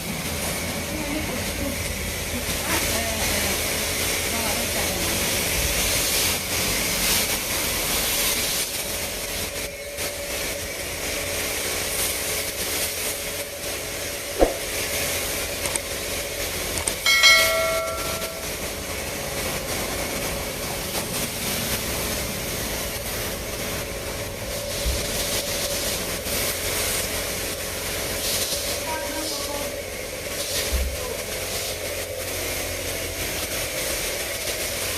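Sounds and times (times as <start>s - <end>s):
pressure washer spraying water: 0.0s - 34.9s
machine hum: 17.0s - 19.3s
short pitched tone: 17.1s - 18.6s.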